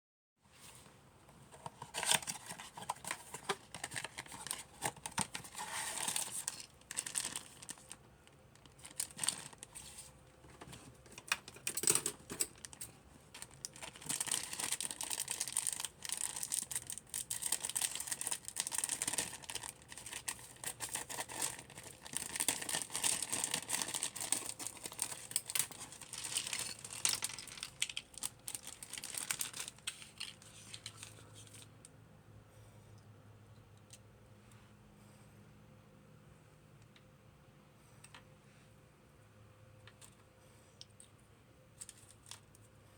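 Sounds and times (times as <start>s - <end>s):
packaging crinkling and tearing: 1.8s - 8.0s, 8.6s - 10.0s, 11.1s - 31.7s.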